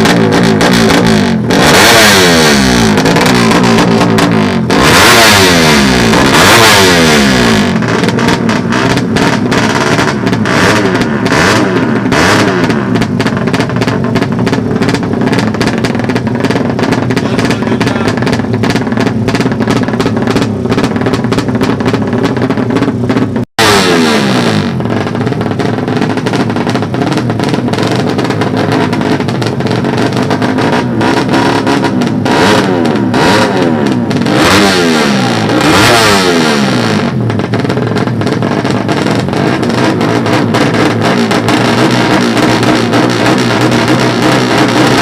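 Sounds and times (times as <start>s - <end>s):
motorbike engines revving hard: 0.0s - 45.0s.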